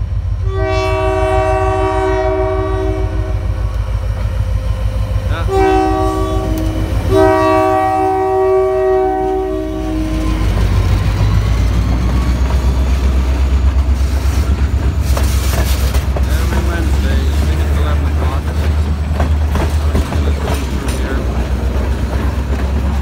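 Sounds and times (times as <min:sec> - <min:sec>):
locomotive air horn blasts: 0:00.4 - 0:03.5, 0:05.3 - 0:10.4
train wheels clicking over rail joints: 0:10.1 - 0:23.0.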